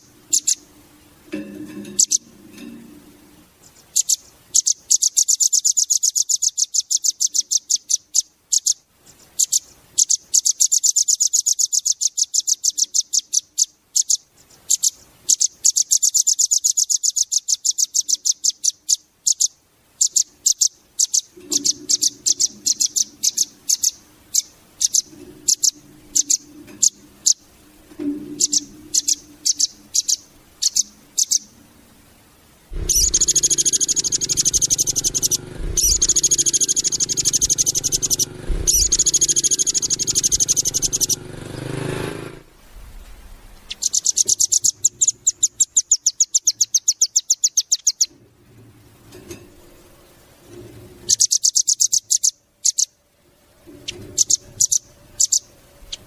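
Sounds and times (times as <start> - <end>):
bird singing high trills: 0.0 - 0.7, 1.9 - 2.3, 3.6 - 8.8, 9.4 - 31.6, 32.7 - 42.4, 43.6 - 48.1, 51.0 - 53.0, 53.7 - 56.0
low rumble: 32.7 - 45.4.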